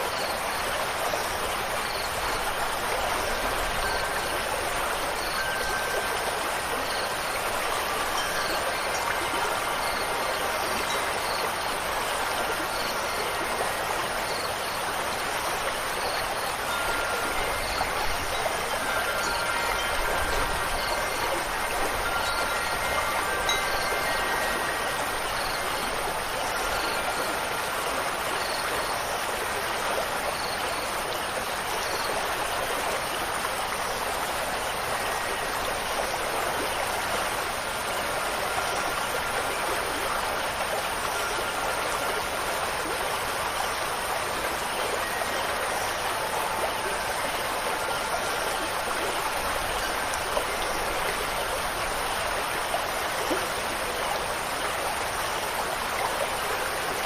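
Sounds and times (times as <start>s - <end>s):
running water: 0.0s - 57.0s
faint chime tones: 1.2s - 32.2s.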